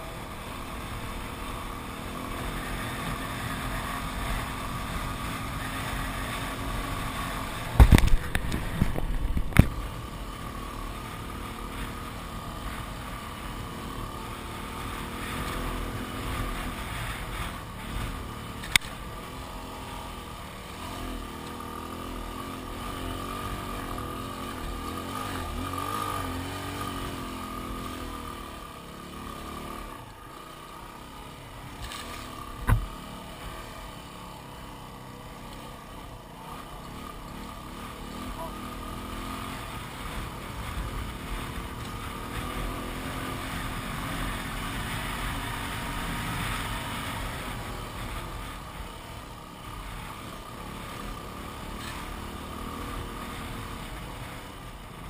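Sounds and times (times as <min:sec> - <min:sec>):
motorcycle engine running: 0:00.0 - 0:55.0
sharp knocks: 0:32.6 - 0:32.9.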